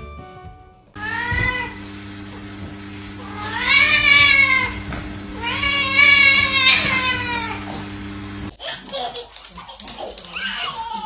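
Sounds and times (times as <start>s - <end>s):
cat meowing: 1.0s - 8.1s
steady low hum: 1.0s - 8.5s.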